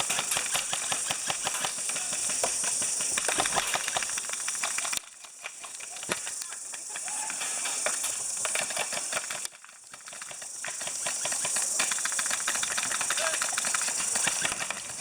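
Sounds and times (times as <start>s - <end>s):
airsoft guns firing: 0.0s - 5.0s.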